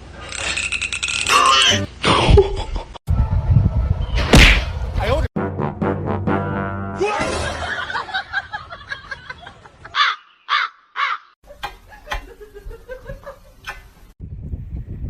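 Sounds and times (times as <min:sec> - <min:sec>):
bird calling harshly: 0:10.0 - 0:11.4.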